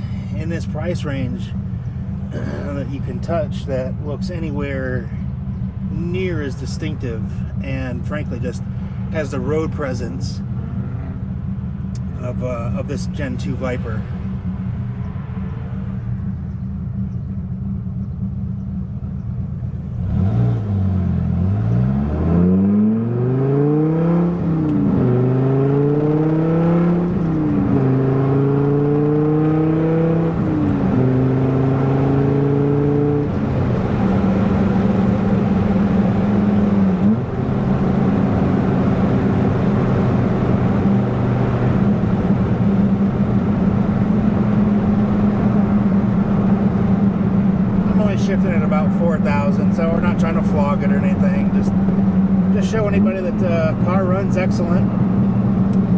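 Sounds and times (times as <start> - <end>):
car engine accelerating through gears: 18.0 - 55.9.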